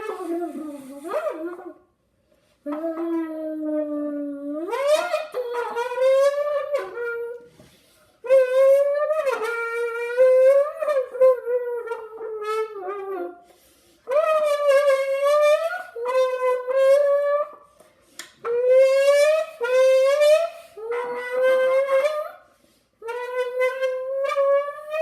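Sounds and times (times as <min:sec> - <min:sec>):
buzzing horn-like blasts from a can: 0:18.6 - 0:22.3.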